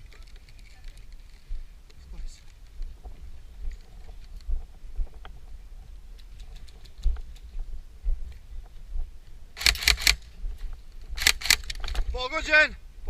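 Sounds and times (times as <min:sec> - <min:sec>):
airsoft gun firing bursts: 0:09.6 - 0:10.2, 0:11.2 - 0:11.8.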